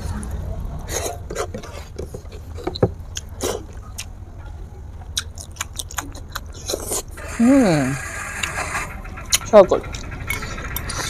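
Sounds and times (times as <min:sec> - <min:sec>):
chewing and lip-smacks: 0:03.1 - 0:04.1, 0:05.2 - 0:07.1.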